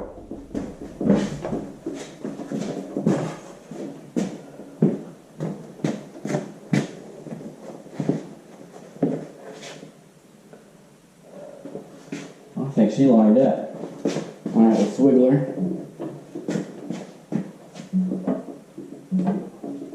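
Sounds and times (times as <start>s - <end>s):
heavy metal clunks and knocks: 0.0s - 3.4s.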